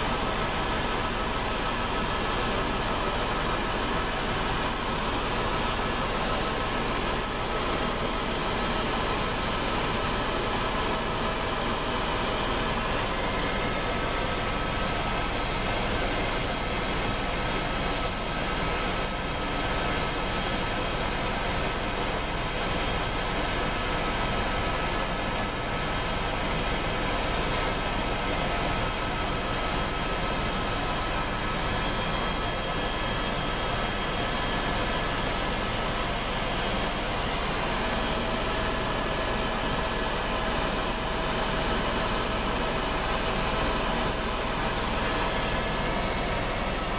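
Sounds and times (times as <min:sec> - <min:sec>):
helicopter engine and rotor: 0:00.0 - 0:46.9.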